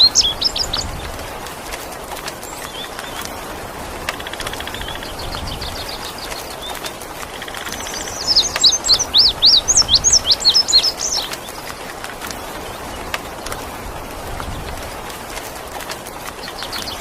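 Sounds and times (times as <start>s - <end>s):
rain hissing: 0.0s - 17.0s.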